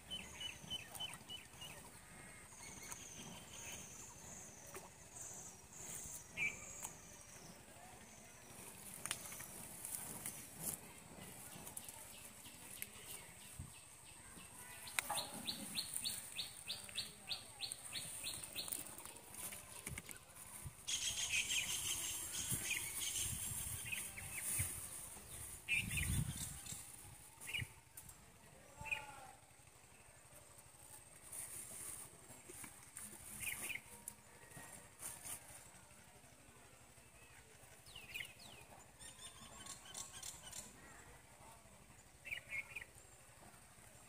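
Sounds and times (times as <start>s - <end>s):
birds chirping: 0.0s - 27.8s.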